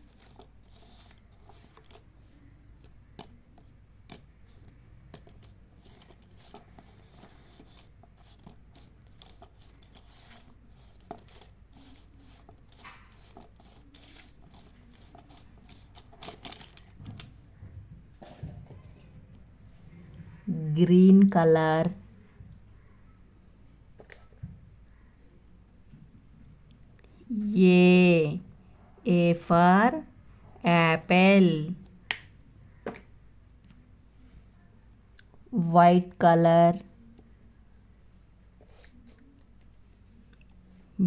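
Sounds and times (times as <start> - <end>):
marker scratching on paper: 0.1 - 2.3, 5.2 - 16.2.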